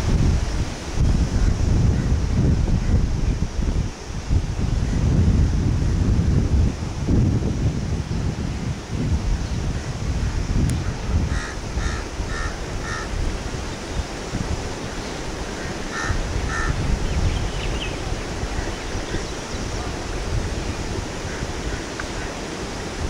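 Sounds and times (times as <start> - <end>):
wind rumbling on microphone: 0.0 - 23.0
birds calling: 9.4 - 22.9.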